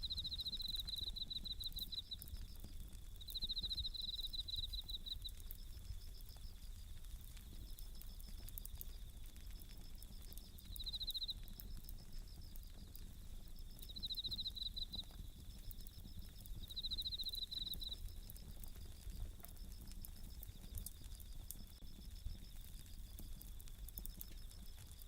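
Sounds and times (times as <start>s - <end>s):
crickets ringing trills: 0.0s - 23.2s
campfire crackling: 0.0s - 25.0s
faint insect chirping: 0.0s - 25.0s.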